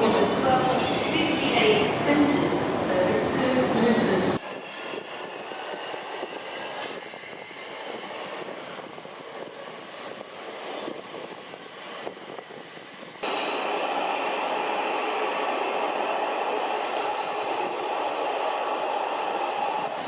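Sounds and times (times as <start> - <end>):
electric train running: 4.3 - 20.0.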